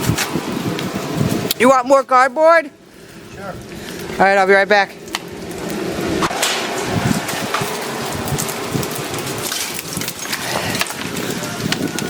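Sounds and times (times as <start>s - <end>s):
fire crackling: 0.0s - 12.0s
melting ice dripping: 2.9s - 12.0s.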